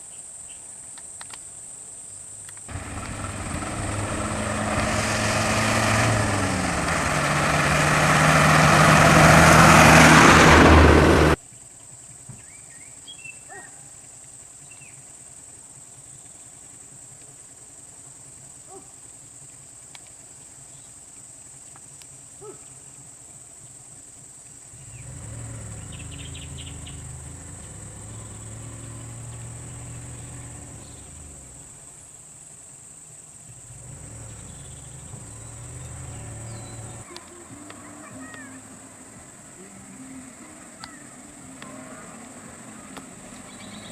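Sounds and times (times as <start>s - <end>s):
low engine hum: 2.7s - 11.4s, 24.7s - 32.1s, 33.5s - 43.9s
vehicle engine running hard: 2.7s - 11.4s, 24.7s - 32.0s, 33.5s - 43.9s
high-pitched insect drone: 36.2s - 43.9s.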